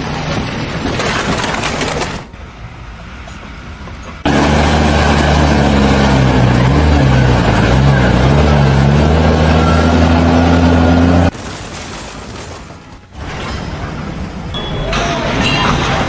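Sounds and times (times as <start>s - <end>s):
loud engine running: 0.0s - 11.3s.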